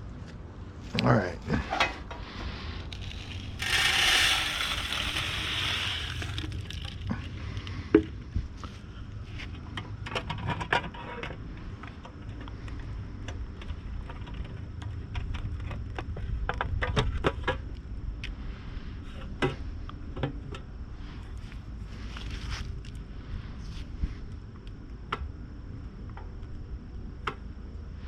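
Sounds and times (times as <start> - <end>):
metal bird feeder rattling: 3.0 - 7.1.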